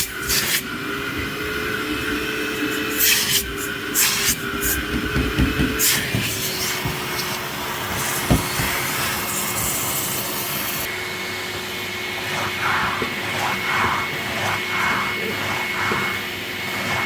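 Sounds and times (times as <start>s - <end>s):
vacuum cleaner running: 0.0s - 17.0s
knock: 4.9s - 7.0s, 8.3s - 8.8s.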